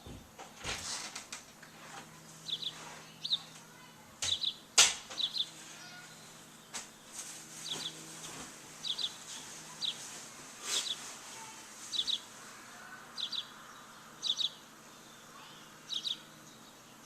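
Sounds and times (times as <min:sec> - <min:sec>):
small birds chirping: 0:01.5 - 0:17.0
rustles or flutters: 0:05.5 - 0:12.9.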